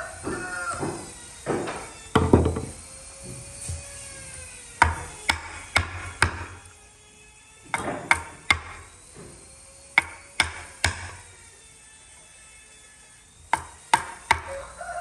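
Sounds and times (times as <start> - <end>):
hammer striking workpiece: 4.8 - 6.4, 7.7 - 8.8, 10.0 - 11.1, 13.5 - 14.5.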